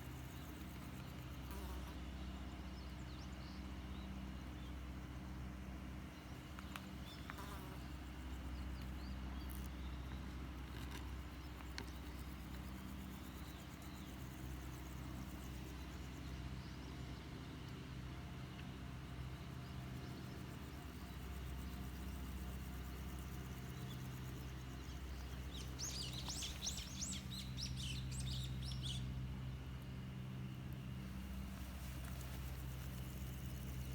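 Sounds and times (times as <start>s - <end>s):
low mechanical hum: 0.0s - 33.9s
small bird chirps: 20.0s - 29.2s.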